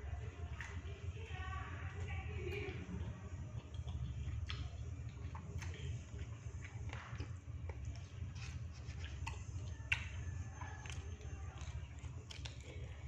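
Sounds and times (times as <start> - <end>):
chewing: 0.0 - 13.0
steady low hum: 0.0 - 13.0.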